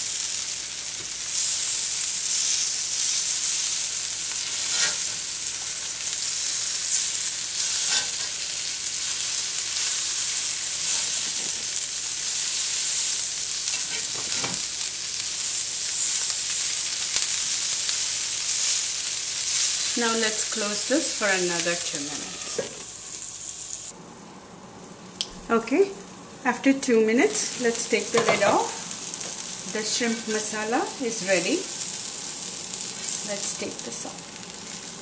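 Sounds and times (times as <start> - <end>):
prawns sizzling in oil: 0.0 - 24.0, 26.6 - 35.0
metal spatula scraping pan: 4.6 - 5.2.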